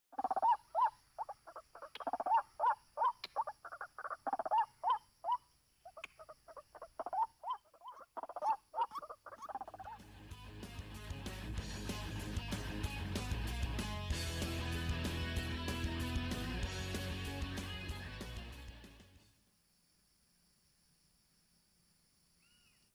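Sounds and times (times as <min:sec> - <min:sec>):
waterhen calling: 0:00.1 - 0:10.0
music: 0:09.9 - 0:19.4.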